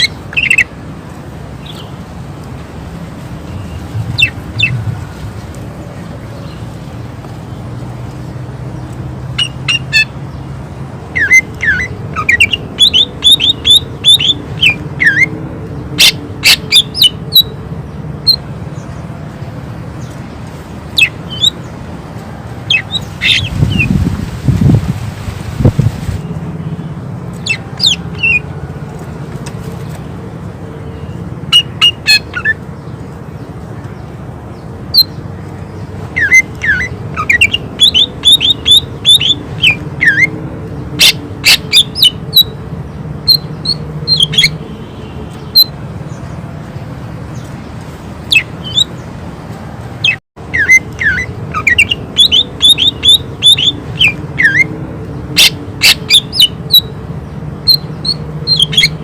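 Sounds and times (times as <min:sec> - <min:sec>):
bird singing and whistling: 0:00.0 - 0:00.7, 0:03.5 - 0:04.8, 0:11.1 - 0:15.3, 0:16.0 - 0:17.5, 0:21.0 - 0:21.6, 0:22.7 - 0:24.0, 0:27.4 - 0:28.4, 0:31.5 - 0:32.6, 0:36.2 - 0:40.3, 0:41.0 - 0:42.5, 0:43.3 - 0:44.6, 0:48.3 - 0:49.0, 0:50.0 - 0:54.7, 0:55.4 - 0:56.9, 0:57.7 - 0:59.0.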